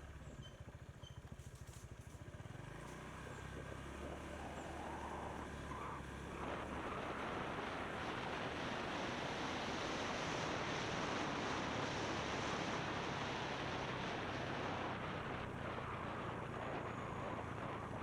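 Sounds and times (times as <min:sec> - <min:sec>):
wind roaring over microphone: 0:04.2 - 0:18.0.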